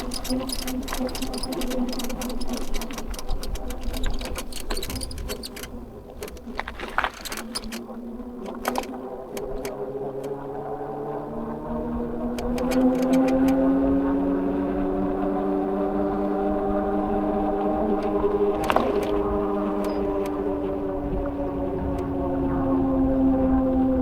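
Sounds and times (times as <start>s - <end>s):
bike drivetrain clicking and squeaking: 0.0s - 10.4s, 12.3s - 13.6s, 17.7s - 22.1s.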